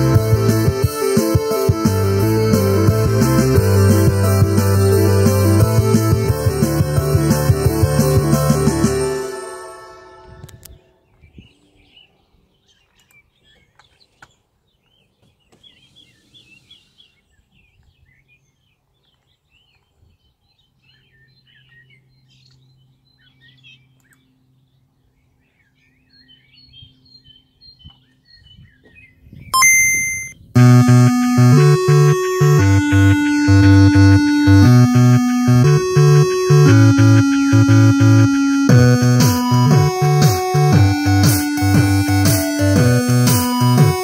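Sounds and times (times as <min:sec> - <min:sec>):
loud music with pulsing bass: 0:00.0 - 0:09.3, 0:30.6 - 0:44.0.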